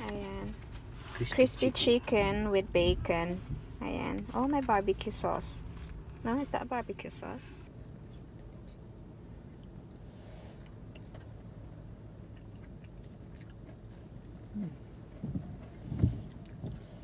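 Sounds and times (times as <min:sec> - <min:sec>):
low steady hum: 0:00.0 - 0:17.0
person chewing food: 0:08.2 - 0:17.0.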